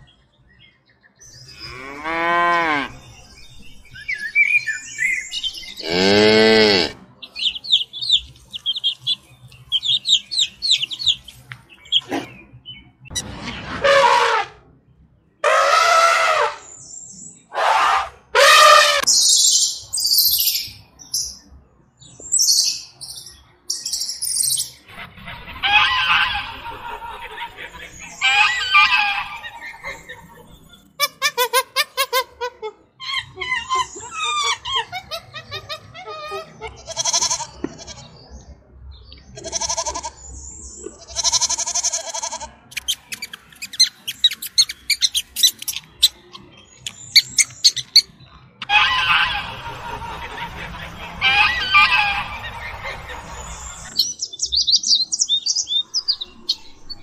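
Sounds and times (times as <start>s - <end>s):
elephant trumpeting: 13.5s - 14.6s, 15.4s - 16.7s, 17.5s - 19.0s, 48.6s - 49.7s
geese calling: 24.9s - 30.2s, 47.1s - 54.0s.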